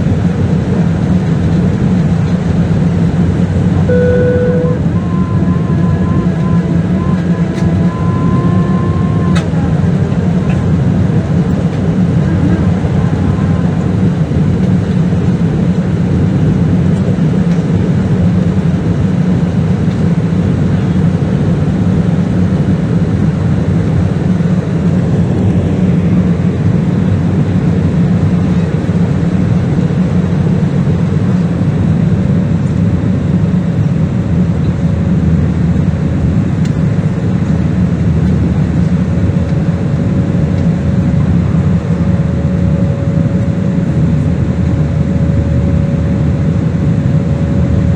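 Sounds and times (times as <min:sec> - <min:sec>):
airliner engine and airflow noise: 0:00.0 - 0:47.9
faint steady tone: 0:03.9 - 0:10.8.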